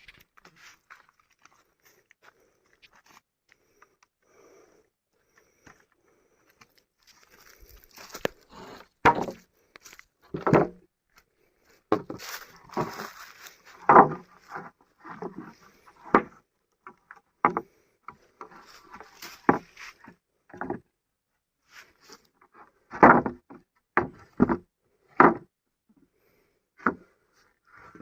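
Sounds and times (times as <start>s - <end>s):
rustling: 11.7s - 14.7s
short knocks and thumps: 13.8s - 14.3s.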